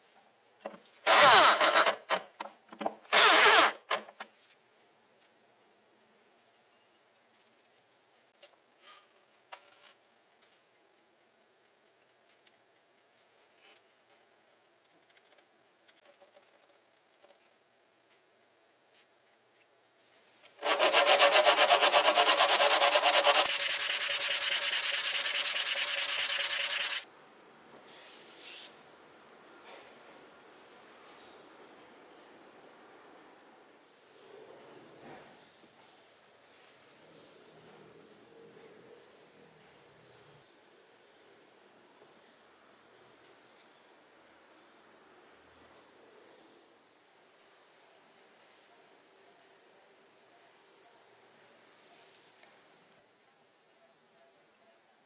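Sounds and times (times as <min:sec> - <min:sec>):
tool scraping on wood: 0:20.6 - 0:27.0
wood sanding rasp: 0:20.6 - 0:27.0.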